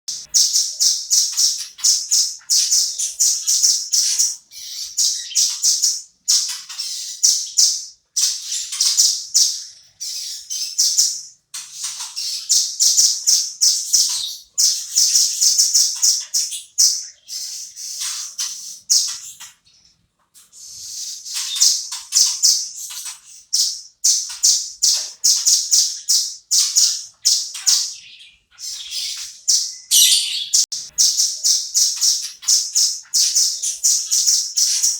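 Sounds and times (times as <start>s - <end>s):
bird calling high sharp notes: 28.6s - 34.9s.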